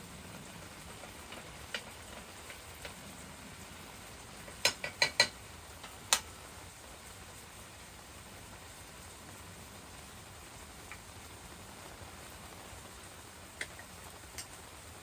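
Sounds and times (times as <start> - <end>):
faint steady hiss: 0.0 - 15.0
light ticks: 13.6 - 14.6.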